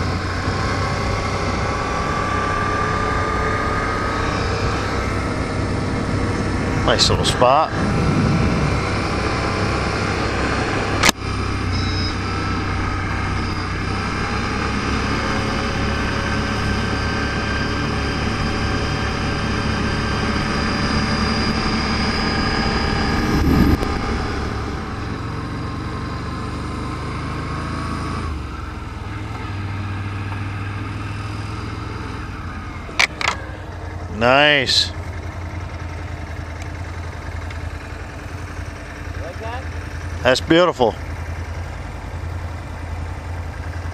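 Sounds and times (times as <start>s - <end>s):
atv engine running: 0.0s - 43.9s.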